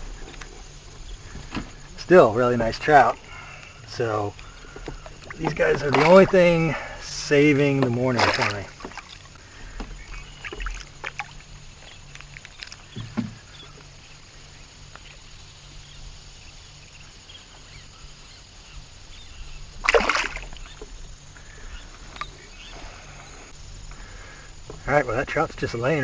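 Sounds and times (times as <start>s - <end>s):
water lapping around a boat: 0.0s - 26.0s
fish splashing into water: 4.7s - 7.0s, 7.7s - 9.3s, 19.8s - 20.9s.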